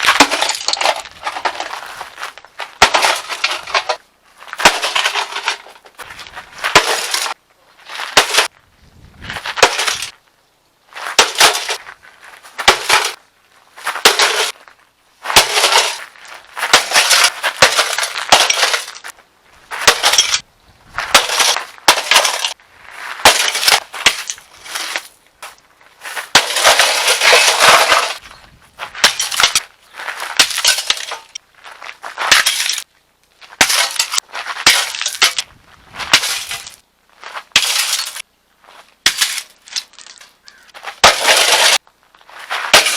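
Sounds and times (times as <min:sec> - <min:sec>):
water heater being smashed: 0:00.0 - 0:01.7, 0:02.8 - 0:04.0, 0:04.6 - 0:05.9, 0:16.7 - 0:19.1, 0:21.1 - 0:22.6, 0:26.3 - 0:28.2, 0:29.0 - 0:29.6, 0:30.4 - 0:31.4, 0:33.6 - 0:35.4, 0:41.0 - 0:41.8.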